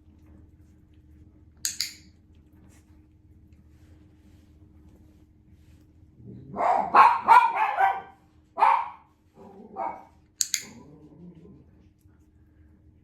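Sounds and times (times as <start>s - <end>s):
sharp high clicks: 1.6s - 2.1s, 10.4s - 10.7s
dogs barking: 6.5s - 10.2s.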